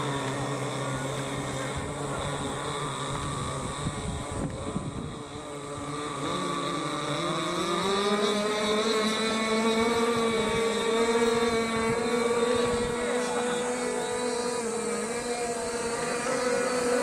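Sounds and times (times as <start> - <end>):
model boat engines racing: 0.0 - 17.0.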